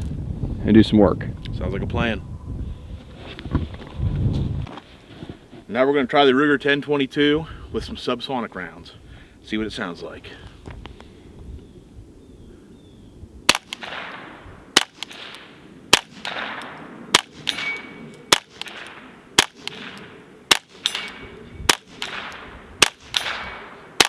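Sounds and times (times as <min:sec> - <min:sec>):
suppressed rifle shots: 0:13.5 - 0:24.0.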